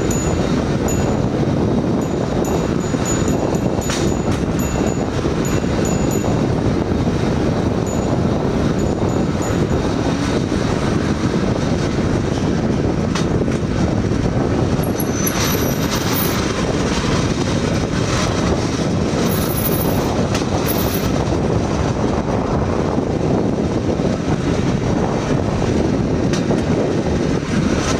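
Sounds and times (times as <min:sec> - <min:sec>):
wheels clacking over rail joints: 0:00.0 - 0:21.2
steel wheels rolling on rails: 0:00.0 - 0:27.9.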